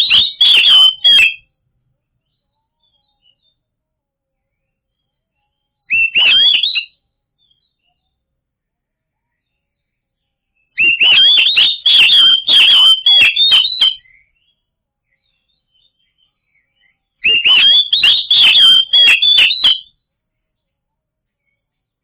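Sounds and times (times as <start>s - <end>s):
bird singing whistled notes: 0.0s - 1.5s, 2.2s - 3.6s, 4.5s - 8.2s, 10.6s - 20.0s.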